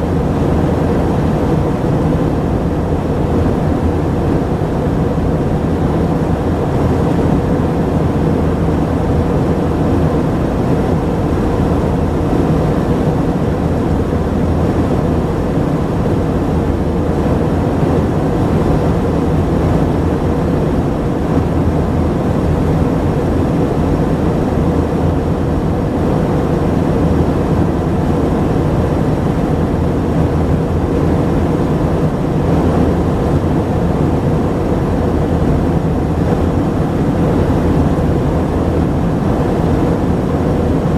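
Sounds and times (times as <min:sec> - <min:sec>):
jet engines in aircraft cabin: 0:00.0 - 0:40.9.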